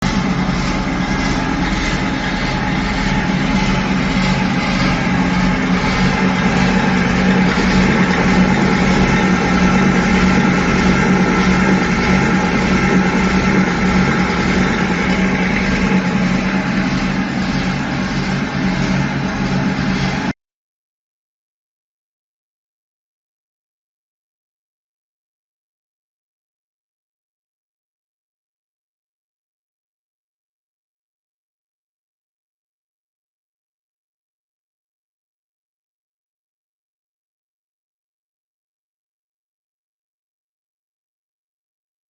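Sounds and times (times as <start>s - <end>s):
machine drive hum: 0.0s - 20.3s.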